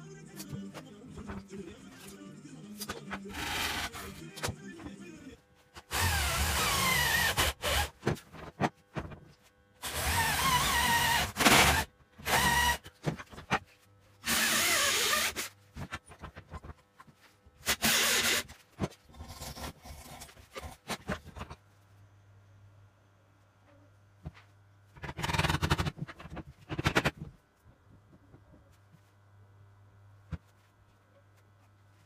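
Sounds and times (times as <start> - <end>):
electric drill boring into wood: 3.3 - 4.1, 5.9 - 8.0, 9.8 - 12.8, 14.2 - 15.5, 17.6 - 18.5.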